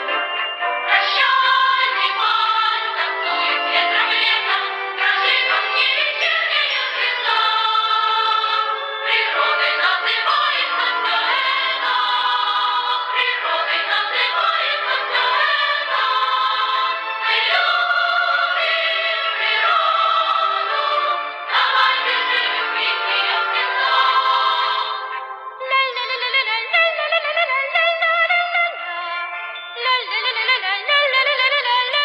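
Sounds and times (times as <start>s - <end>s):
instrumental accompaniment: 0.0s - 26.0s
voices singing: 0.9s - 25.2s.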